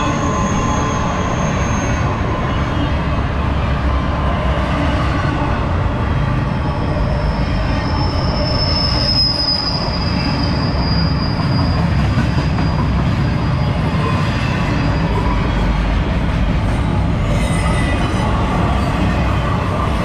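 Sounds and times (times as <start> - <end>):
high steel wheel squeal: 0.0 - 3.2, 6.3 - 15.8, 17.2 - 19.4
train wheels rumbling on rail: 0.0 - 20.0.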